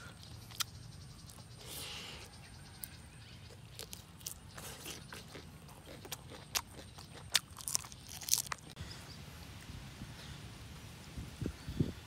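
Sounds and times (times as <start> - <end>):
person chewing shrimp: 0.1 - 8.8.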